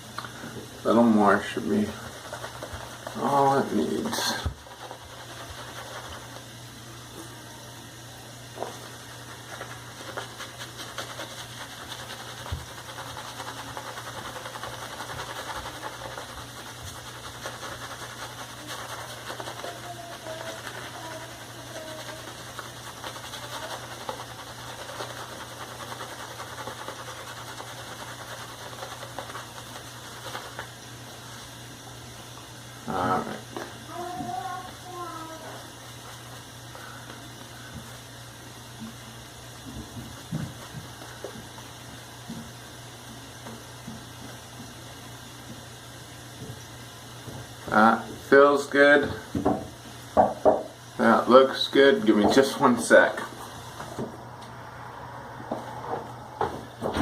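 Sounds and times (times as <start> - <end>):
shaving brush whipping lather: 1.2 - 6.6, 8.6 - 31.6, 33.9 - 38.1.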